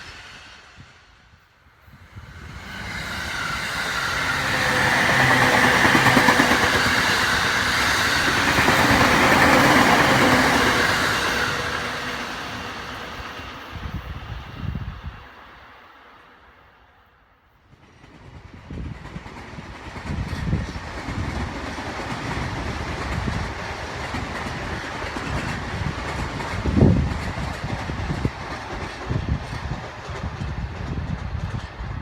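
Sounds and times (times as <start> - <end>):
train rumbling past: 0.0 - 32.0
wheels clacking over rail joints: 2.8 - 12.7.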